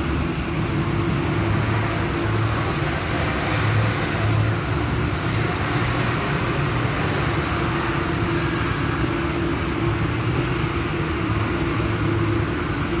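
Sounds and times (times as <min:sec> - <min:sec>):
low machinery hum: 0:00.0 - 0:13.0.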